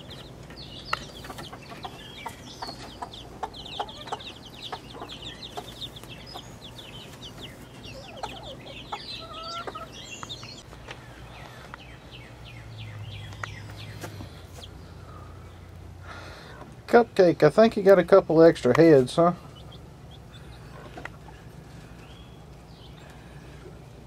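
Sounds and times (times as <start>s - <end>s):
chickens clucking: 0.0s - 12.0s, 18.7s - 24.0s
high chick peeps: 0.0s - 15.8s, 19.4s - 23.9s.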